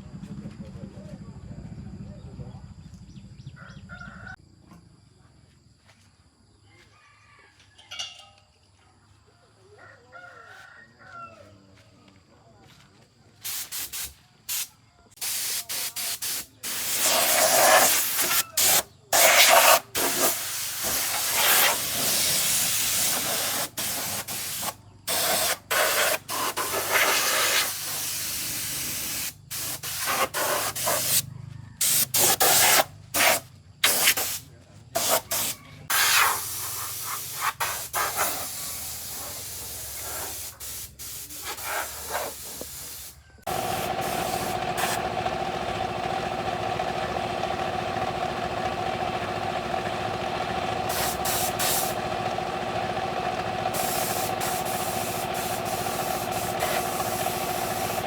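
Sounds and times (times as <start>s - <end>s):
pressurized spray hissing: 13.5s - 31.2s, 31.8s - 34.4s, 35.0s - 45.0s, 50.9s - 52.0s, 53.7s - 58.0s.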